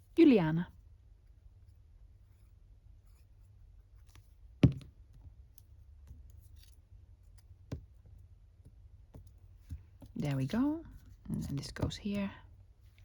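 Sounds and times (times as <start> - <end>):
sharp knock on table: 4.6 - 4.9.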